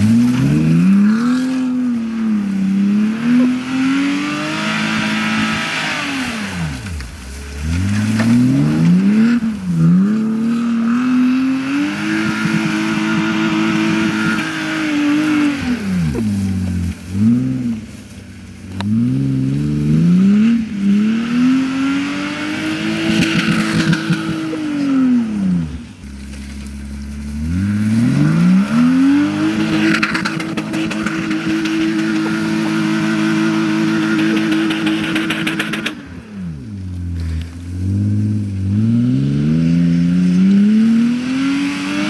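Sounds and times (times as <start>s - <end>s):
car engine revving hard: 0.0s - 18.0s, 18.7s - 36.9s, 37.6s - 42.0s.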